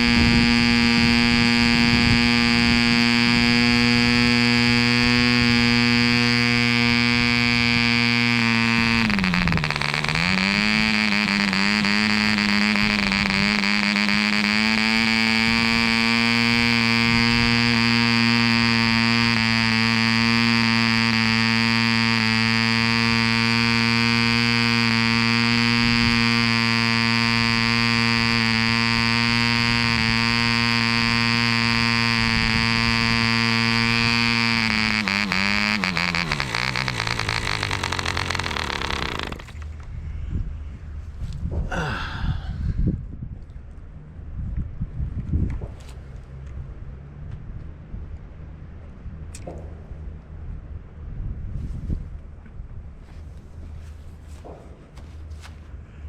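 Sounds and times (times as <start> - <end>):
model diesel engine high buzz: 0.0 - 39.8.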